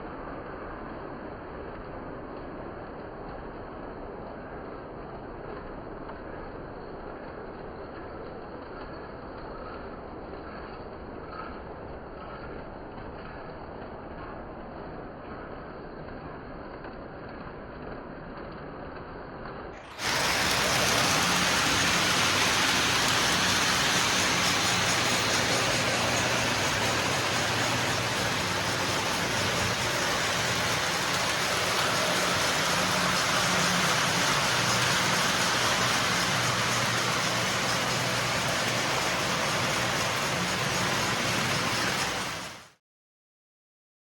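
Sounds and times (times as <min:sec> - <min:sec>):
model trains clattering rumble: 0:19.9 - 0:42.7.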